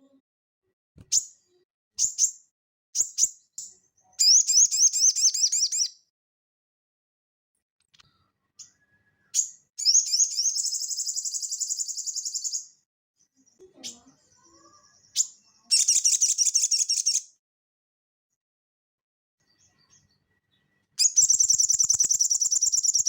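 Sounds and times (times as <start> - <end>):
bird singing fast trills: 4.2 - 6.0, 8.6 - 12.8, 14.6 - 17.3, 21.0 - 23.0.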